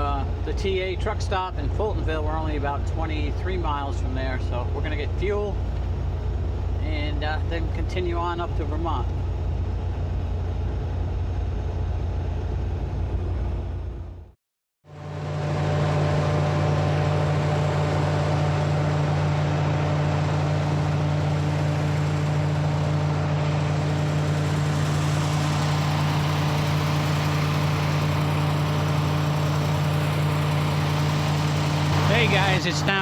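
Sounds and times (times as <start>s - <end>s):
diesel engine idling: 14.9s - 33.0s.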